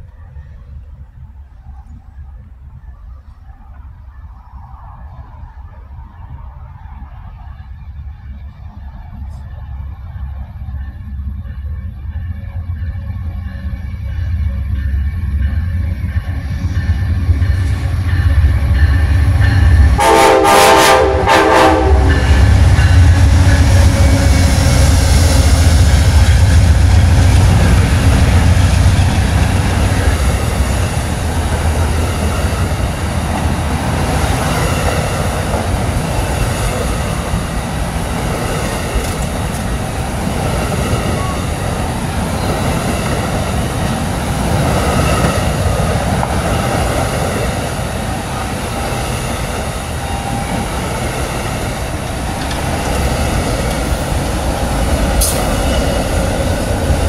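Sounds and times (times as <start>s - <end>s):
diesel locomotive engines rumbling: 0.0s - 57.0s
train cars rolling on rails: 0.0s - 57.0s
train horn blasts: 18.9s - 24.4s.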